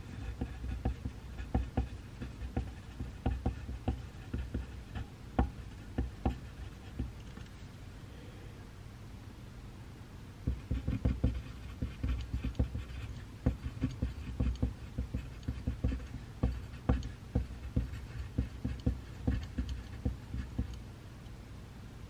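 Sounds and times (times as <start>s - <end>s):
pencil writing on paper: 0.0s - 7.2s, 10.5s - 20.8s.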